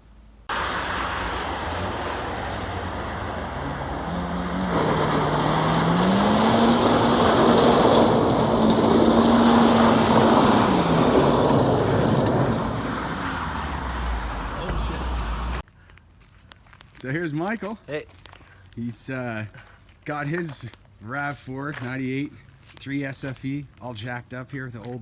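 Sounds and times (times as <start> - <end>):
road and tyre noise: 0.0 - 18.8
vehicle engine: 0.4 - 15.6.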